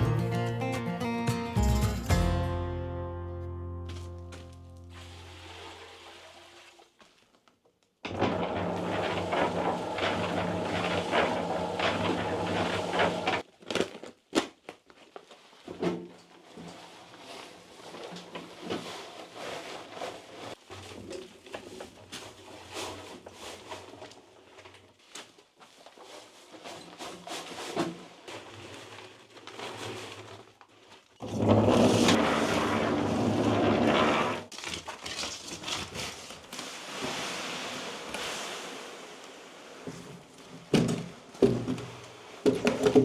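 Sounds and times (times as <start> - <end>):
knocks and scraping: 31.2 - 36.3.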